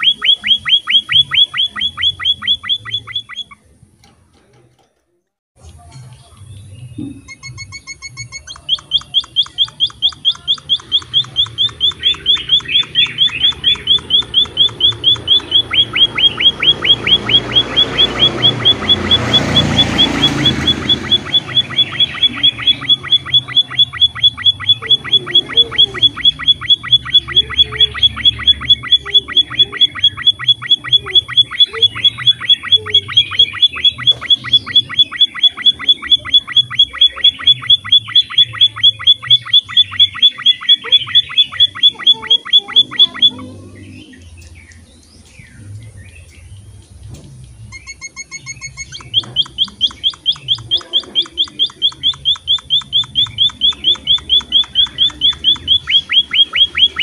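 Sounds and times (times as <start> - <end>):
bird chirping: 0.0 - 5.2, 5.8 - 57.0.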